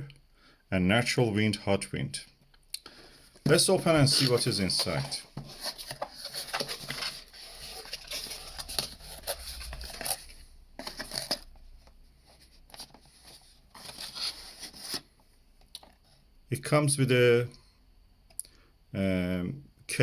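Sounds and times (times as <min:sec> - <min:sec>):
packaging rustling and scraping: 0:03.2 - 0:15.2.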